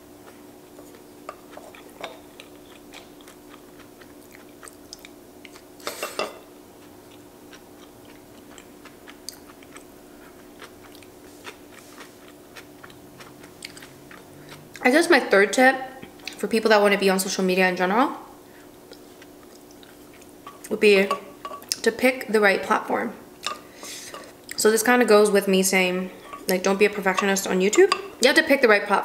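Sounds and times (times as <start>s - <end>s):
faint steady hum: 0.0s - 29.0s
chewing with wet mouth clicks: 0.9s - 5.7s, 6.8s - 14.9s, 18.8s - 20.8s.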